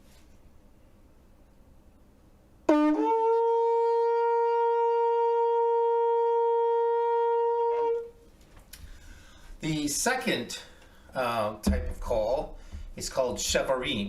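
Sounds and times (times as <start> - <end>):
shofar long blast: 2.6 - 8.2.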